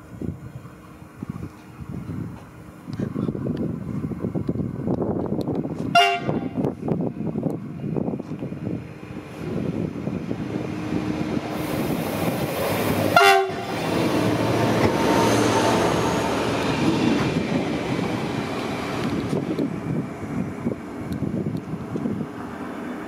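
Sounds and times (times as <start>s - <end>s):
railcar engine and wheels rumbling: 0.0s - 23.0s
train horn blast: 5.9s - 6.6s, 13.1s - 13.8s.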